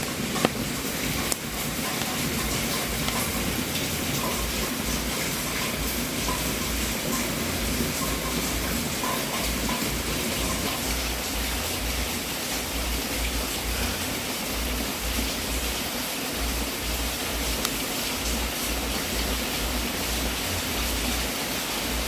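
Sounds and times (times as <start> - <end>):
wood fire hissing: 0.0 - 22.0.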